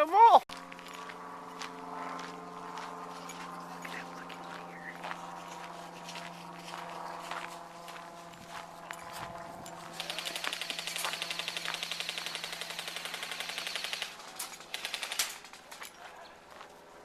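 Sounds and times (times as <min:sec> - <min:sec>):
airsoft gun full-auto burst: 0:10.0 - 0:15.5.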